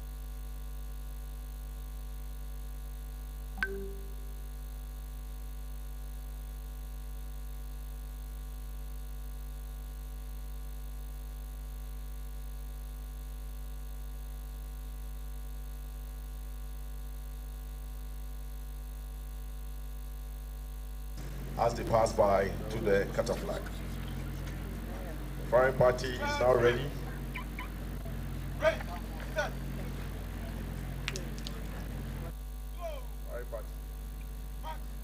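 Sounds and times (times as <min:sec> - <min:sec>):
steady electrical hum: 0:19.7 - 0:35.0.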